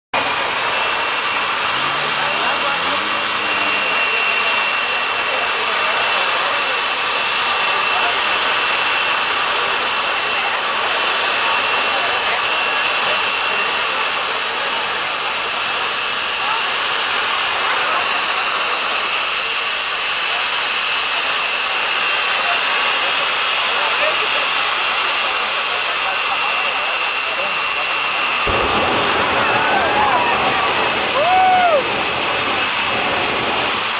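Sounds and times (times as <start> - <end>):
jet turbine engine running: 0.2 - 18.6, 26.9 - 33.9
high-pitched whining tones: 0.3 - 5.5.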